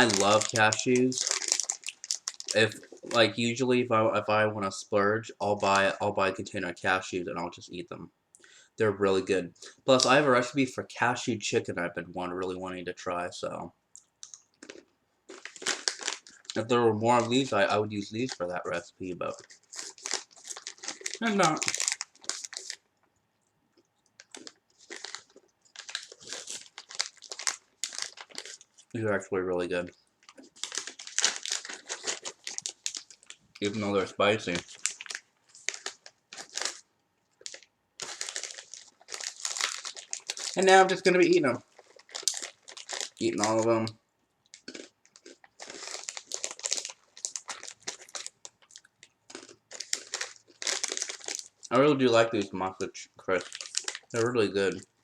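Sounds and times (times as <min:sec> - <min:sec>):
plastic snack bag crinkling: 0:00.0 - 0:03.6, 0:14.0 - 0:23.0, 0:23.8 - 0:55.0.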